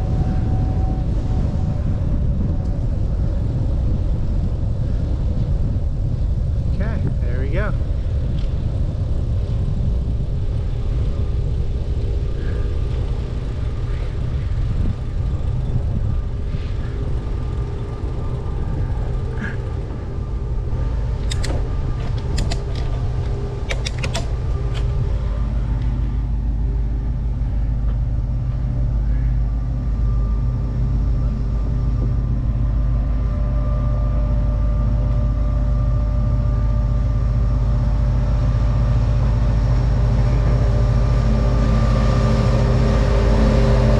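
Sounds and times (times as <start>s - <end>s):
train rumbling: 0.0s - 43.9s
sharp clicks: 21.2s - 24.9s.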